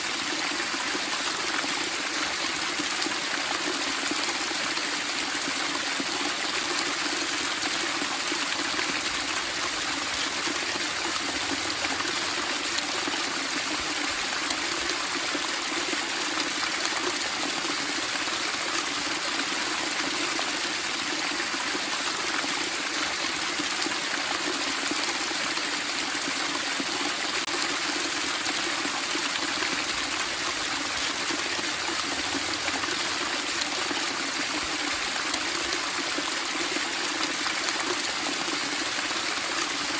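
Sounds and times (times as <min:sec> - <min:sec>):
running water splashing: 0:08.2 - 0:19.4, 0:25.5 - 0:39.9.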